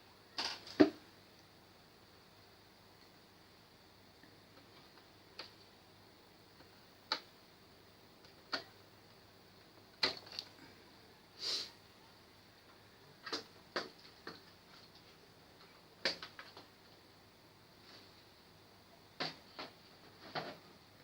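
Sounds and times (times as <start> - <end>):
short scraping hiss: 11.4 - 11.8.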